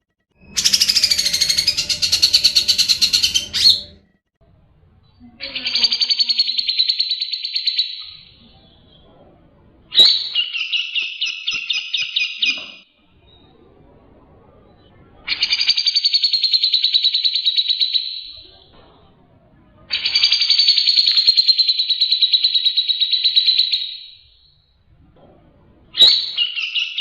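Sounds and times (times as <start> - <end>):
bulbul chattering trills: 0.4 - 4.0.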